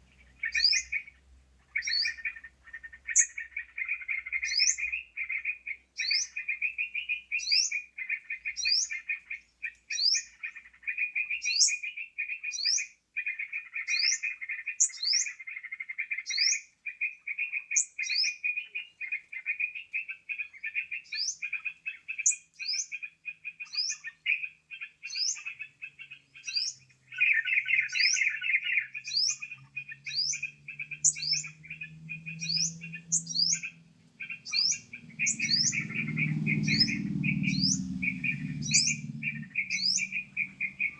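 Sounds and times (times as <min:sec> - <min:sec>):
bird chattering calls: 0:00.0 - 0:40.9
faint low hum: 0:29.0 - 0:40.9.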